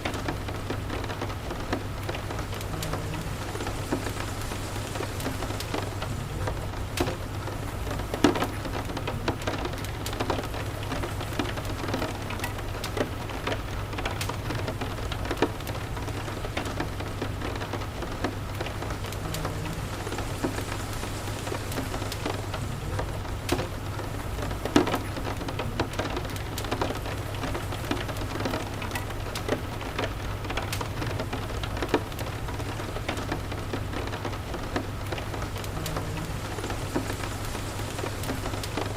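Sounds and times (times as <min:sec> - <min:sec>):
rain hissing: 0:00.0 - 0:38.9
low steady rumble: 0:01.4 - 0:08.2.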